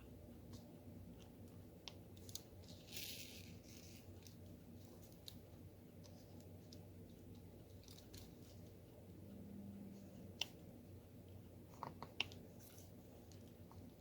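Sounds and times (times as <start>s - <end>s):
low steady hum: 0.0s - 14.0s
soft rustle: 2.2s - 5.4s.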